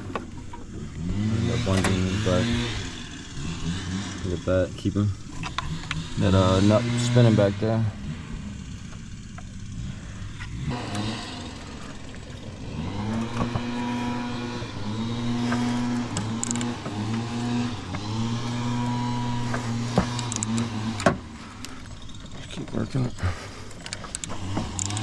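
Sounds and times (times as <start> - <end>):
electric power tool motor: 0.0 - 25.0
metallic clicks: 16.0 - 17.2, 19.4 - 22.4, 23.8 - 25.0.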